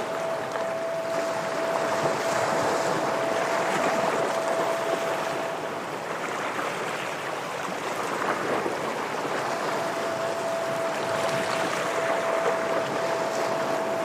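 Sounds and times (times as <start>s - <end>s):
steady thin tone: 9.3s - 14.0s.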